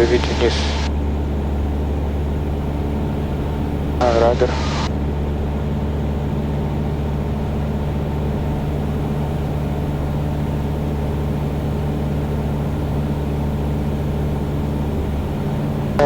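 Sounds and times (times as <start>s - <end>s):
airplane propeller engine droning: 0.0s - 16.0s.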